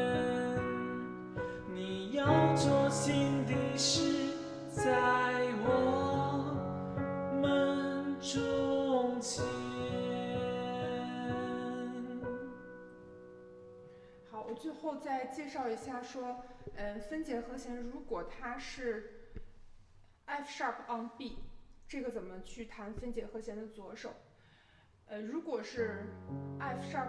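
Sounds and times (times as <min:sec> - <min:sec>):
woman singing: 0:00.0 - 0:06.6, 0:07.3 - 0:12.5
piano broken chords: 0:00.0 - 0:13.8.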